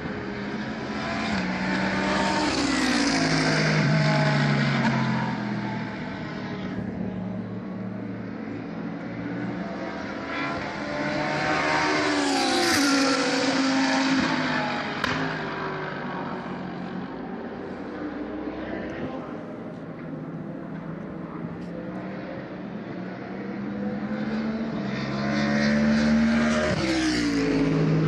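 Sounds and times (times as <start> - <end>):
race car passing: 0.0 - 28.0.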